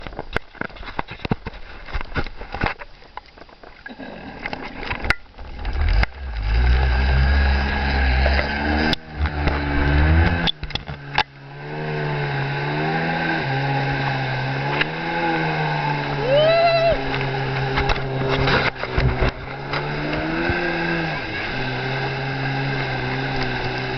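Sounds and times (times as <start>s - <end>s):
jet ski engine revving: 5.4s - 23.9s.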